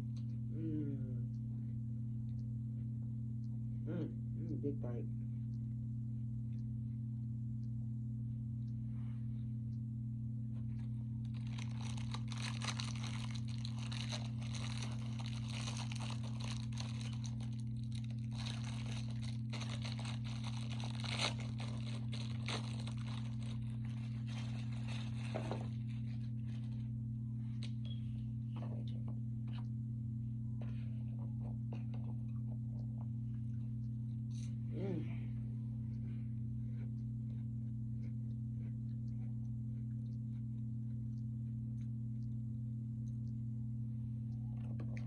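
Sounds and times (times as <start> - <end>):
steady low hum: 0.0 - 45.0
chewing crunchy food: 10.6 - 26.9, 35.9 - 43.4.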